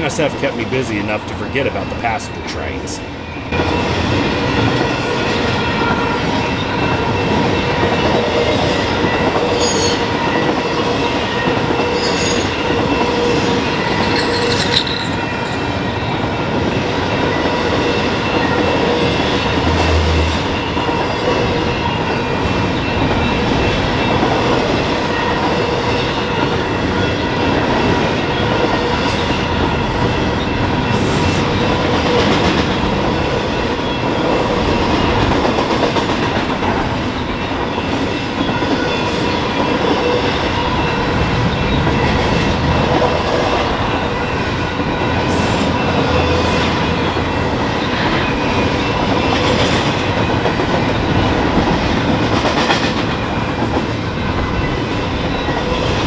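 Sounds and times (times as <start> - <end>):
train wheels clattering over rails: 16.4 - 56.0.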